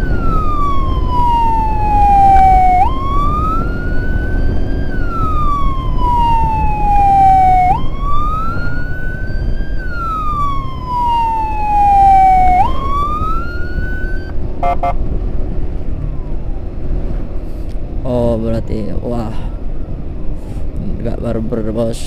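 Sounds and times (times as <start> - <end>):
emergency siren wailing: 0.0 - 15.1, 15.8 - 17.1
road and wind rumble: 0.0 - 22.0.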